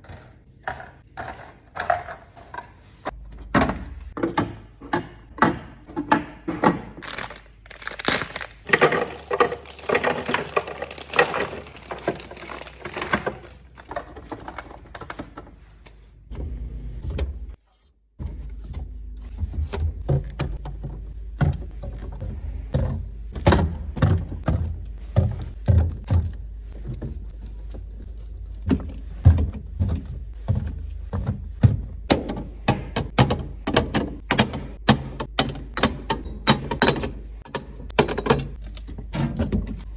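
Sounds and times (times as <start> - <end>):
objects clunking on shelves: 0.0 - 7.2, 8.6 - 17.6, 18.2 - 39.9
rustling and handling: 7.0 - 16.3, 17.5 - 32.7.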